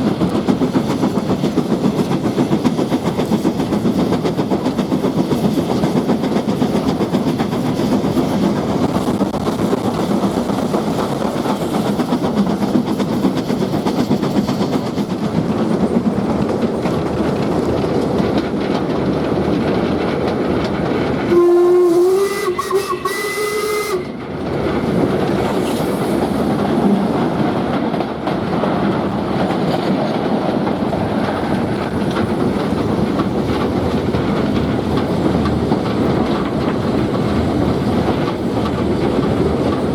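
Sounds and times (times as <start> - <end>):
train wheel and rail noise: 0.0 - 39.9
steam whistle blast: 21.3 - 24.2.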